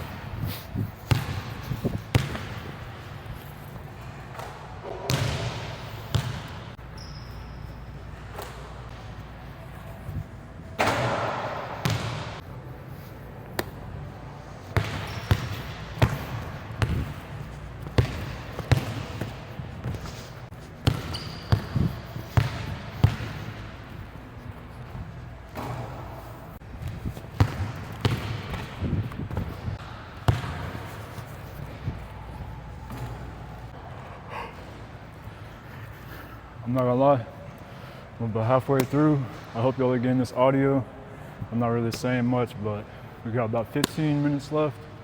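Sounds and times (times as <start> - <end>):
basketball bouncing on hard court: 1.0 - 2.8, 5.1 - 7.2, 10.8 - 12.4, 14.8 - 20.2, 20.8 - 23.8, 26.8 - 31.0.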